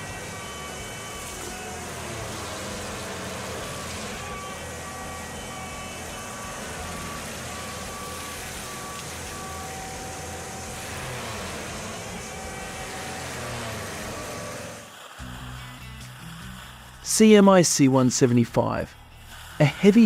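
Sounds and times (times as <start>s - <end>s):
beeping warning alarm: 0.0s - 14.9s
heavy machine engine running: 0.0s - 16.8s.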